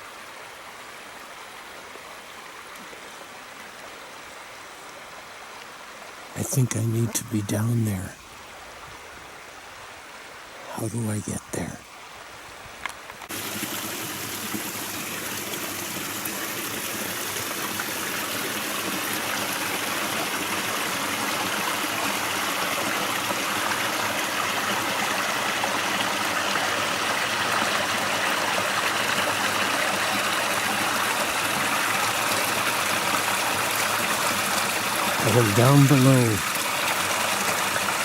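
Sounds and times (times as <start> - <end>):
stream rushing over rocks: 11.6 - 38.0.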